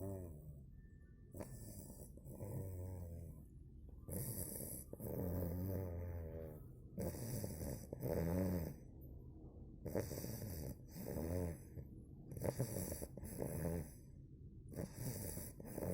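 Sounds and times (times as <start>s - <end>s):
puppy snoring: 0.0s - 8.9s, 9.8s - 15.9s.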